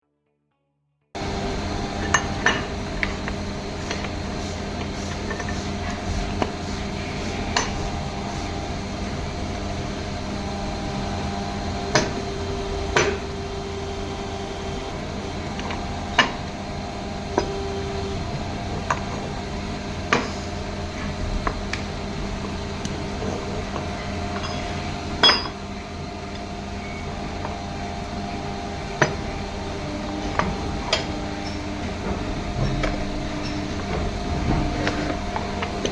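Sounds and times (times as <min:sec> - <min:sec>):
workshop machinery hum: 0:01.2 - 0:35.9.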